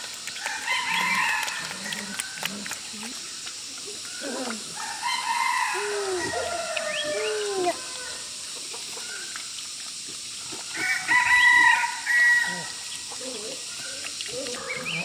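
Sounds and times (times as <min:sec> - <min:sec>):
chickens calling: 0:00.0 - 0:02.8
rooster crowing: 0:00.5 - 0:02.5, 0:04.8 - 0:08.3, 0:10.8 - 0:12.8.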